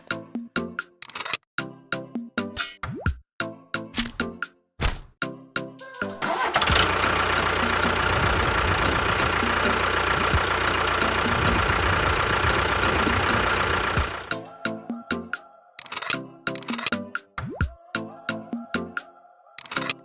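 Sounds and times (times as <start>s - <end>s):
motor running: 6.2s - 14.3s.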